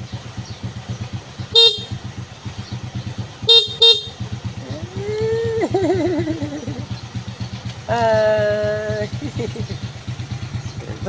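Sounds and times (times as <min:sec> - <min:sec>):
vehicle engine idling: 0:00.0 - 0:11.0
car horn beeps: 0:01.5 - 0:02.0, 0:03.4 - 0:04.3.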